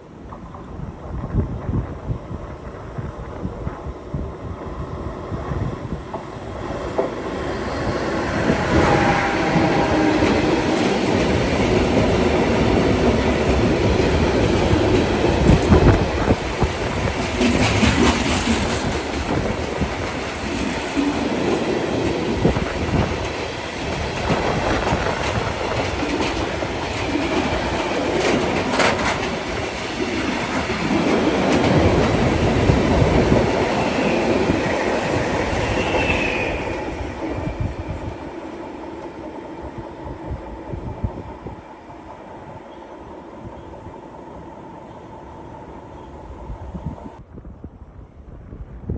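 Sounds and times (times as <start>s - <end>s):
train wheels clicking over rail joints: 6.1s - 36.2s.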